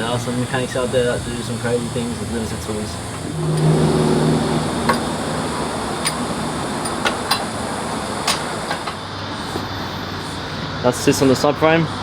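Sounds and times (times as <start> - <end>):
steady background hum: 0.0 - 9.2.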